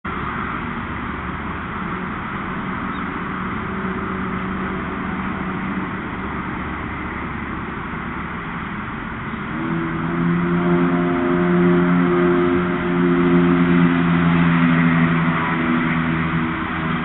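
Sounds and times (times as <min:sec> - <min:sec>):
city traffic noise: 0:00.0 - 0:17.0
vehicle engine hum: 0:00.0 - 0:17.0.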